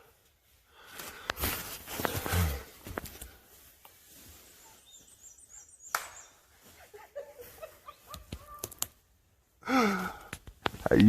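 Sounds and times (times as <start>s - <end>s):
faint clicks: 8.0s - 9.0s.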